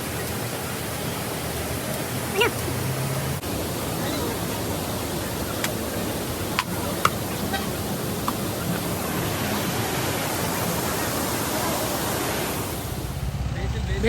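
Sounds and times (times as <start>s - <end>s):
waterfall rushing water: 0.0s - 13.2s.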